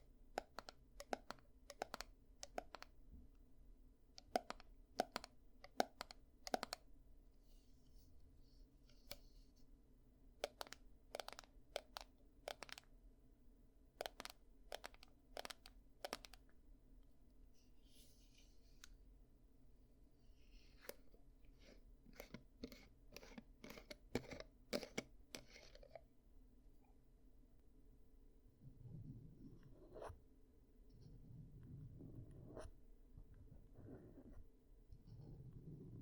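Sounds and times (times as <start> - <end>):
ear-cleaning tool clicks and scratches: 22.1 - 26.0.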